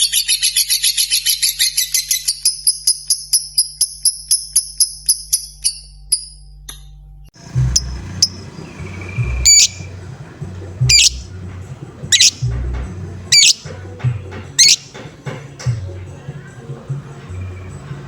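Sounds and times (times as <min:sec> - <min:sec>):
soft bird chirps: 0:07.4 - 0:13.8, 0:14.5 - 0:15.0
low rumble: 0:07.4 - 0:14.3
bird squawking: 0:07.4 - 0:15.1.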